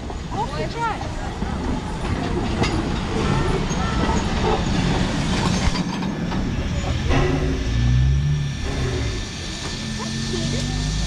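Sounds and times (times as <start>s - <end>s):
train rumbling: 0.0s - 11.0s
metallic clanks: 5.4s - 9.9s.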